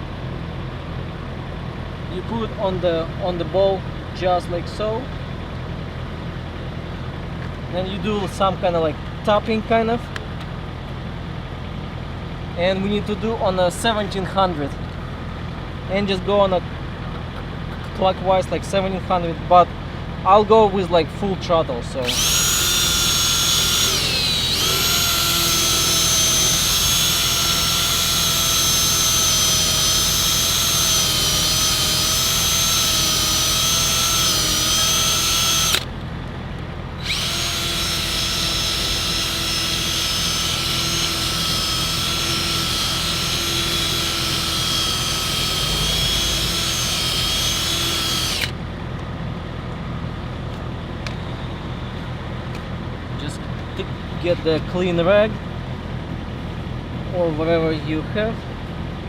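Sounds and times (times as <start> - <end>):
electric drill high whine: 22.0 - 35.9, 37.0 - 48.6.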